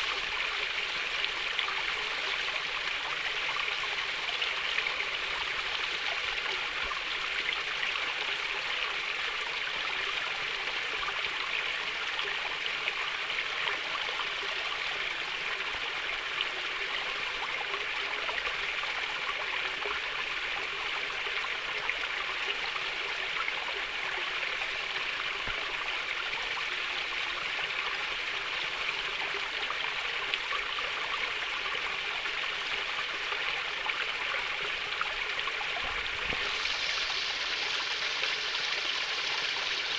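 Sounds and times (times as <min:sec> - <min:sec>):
small stream burbling: 0:00.0 - 0:39.9.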